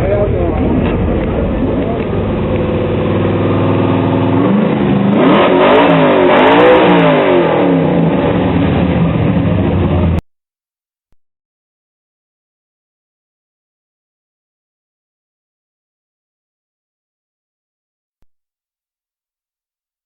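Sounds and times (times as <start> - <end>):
car engine revving: 0.0 - 10.2.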